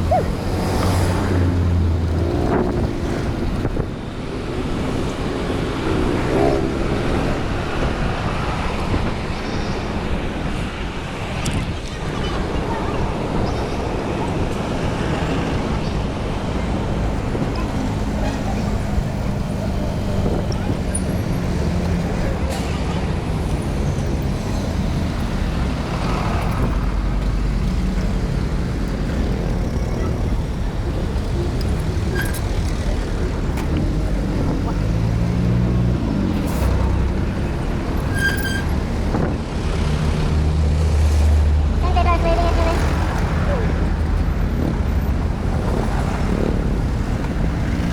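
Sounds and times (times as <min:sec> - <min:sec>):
low engine hum: 0:00.0 - 0:04.0
wind on microphone: 0:00.0 - 0:22.3
road traffic noise: 0:00.0 - 0:47.9
vehicle engines running: 0:00.0 - 0:47.9
short high-pitched squeal: 0:38.1 - 0:38.7.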